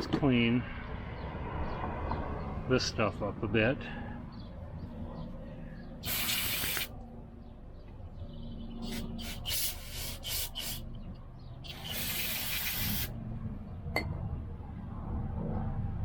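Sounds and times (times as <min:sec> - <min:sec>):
aerosol spray hissing: 0:06.0 - 0:06.9, 0:08.8 - 0:10.8, 0:11.7 - 0:13.1.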